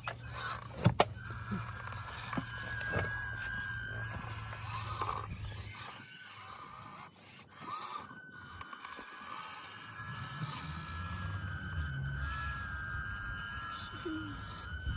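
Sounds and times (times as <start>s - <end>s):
low hum: 0.0s - 6.1s, 9.6s - 14.9s
small electric motor whining: 0.0s - 14.9s.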